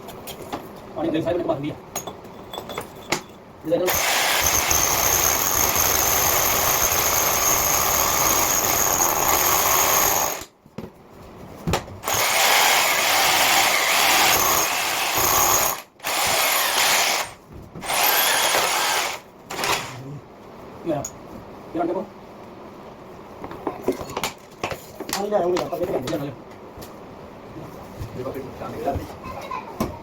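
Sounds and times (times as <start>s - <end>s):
drill hole saw cutting concrete: 3.9s - 10.5s, 12.0s - 20.0s.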